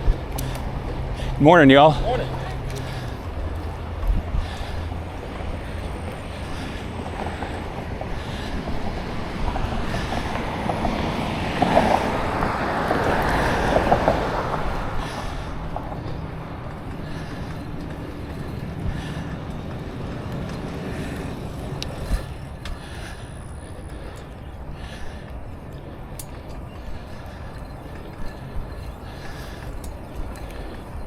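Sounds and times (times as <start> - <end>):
bicycle tyre and drivetrain noise: 0.0 - 31.0
wind rushing over microphone: 2.6 - 17.0
faint clicks: 16.0 - 23.2, 23.8 - 31.0.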